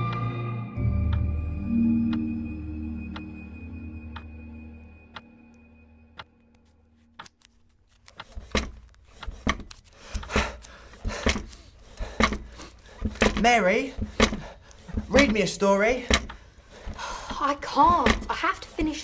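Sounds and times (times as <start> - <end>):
ambient music: 0.0 - 7.2
clock ticking: 8.2 - 19.0.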